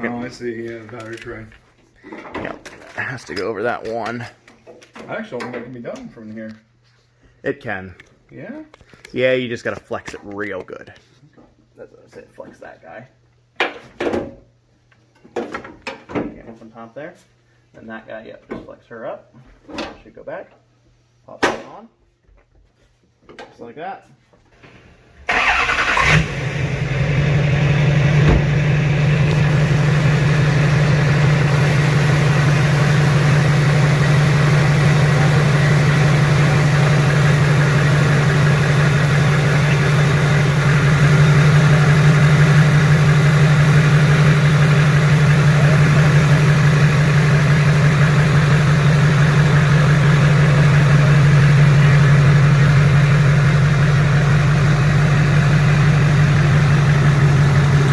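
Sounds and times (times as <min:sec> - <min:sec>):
diesel engine starting: 0:24.6 - 0:57.9
diesel engine idling: 0:25.3 - 0:57.9.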